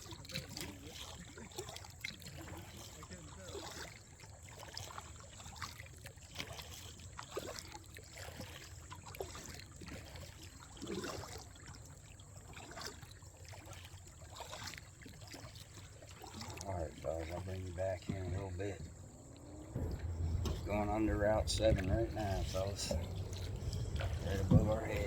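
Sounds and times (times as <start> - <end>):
paddle splashing in water: 0.0 - 25.0
water dripping: 14.7 - 25.0.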